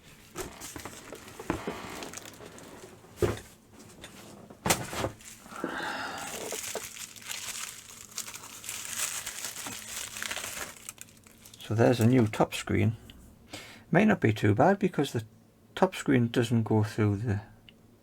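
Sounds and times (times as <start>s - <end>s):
packaging crinkling and rustling: 0.0s - 12.4s.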